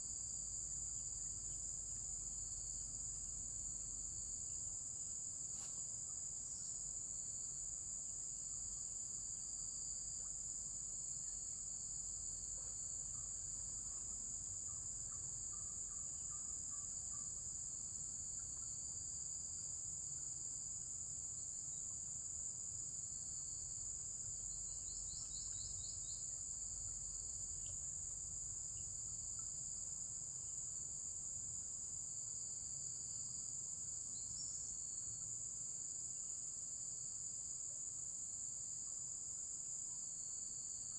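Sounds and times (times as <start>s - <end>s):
insects chorus: 0.0s - 40.9s
short insect chirps: 5.3s - 7.1s, 13.1s - 31.1s, 32.3s - 35.4s.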